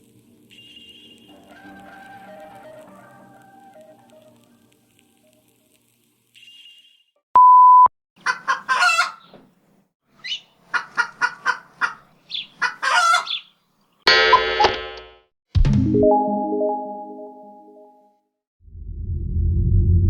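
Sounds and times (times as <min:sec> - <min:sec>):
loud steady beep: 0:07.4 - 0:07.9
chicken clucking: 0:08.2 - 0:09.3, 0:10.2 - 0:13.5.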